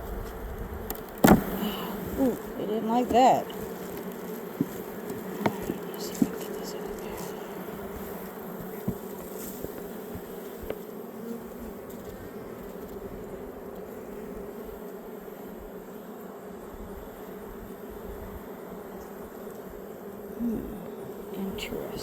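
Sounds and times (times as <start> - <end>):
honeybees buzzing: 0.0 - 22.0
short knocks: 1.2 - 1.8.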